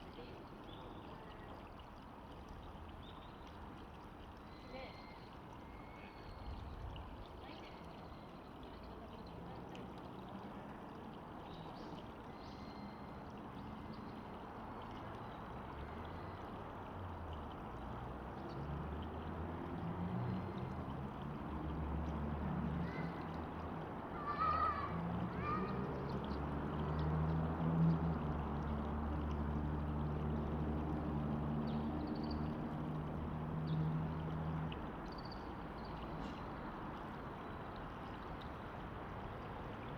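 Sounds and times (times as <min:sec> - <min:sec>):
river water flowing: 0:00.0 - 0:39.9
low engine hum: 0:15.6 - 0:39.9.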